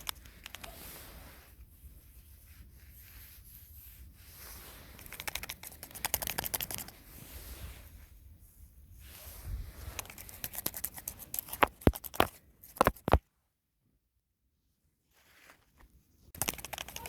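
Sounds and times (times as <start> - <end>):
quick clicking and crackling strokes: 0.0 - 1.5, 4.4 - 7.6, 9.8 - 13.2, 15.4 - 17.0.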